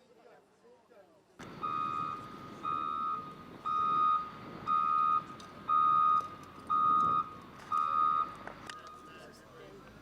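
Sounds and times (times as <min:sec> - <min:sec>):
low background noise: 0:00.0 - 0:10.0
electronic warning beeps: 0:01.4 - 0:09.2.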